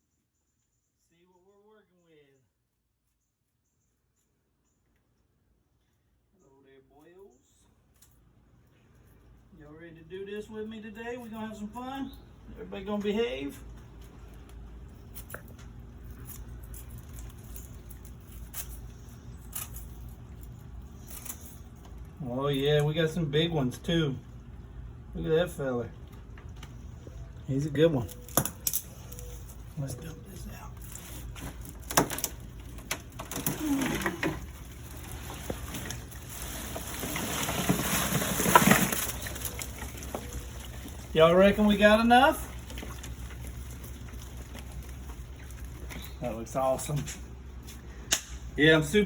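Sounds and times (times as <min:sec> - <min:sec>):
crawfish shells clicking and rustling: 0:13.7 - 0:22.8, 0:28.0 - 0:47.7.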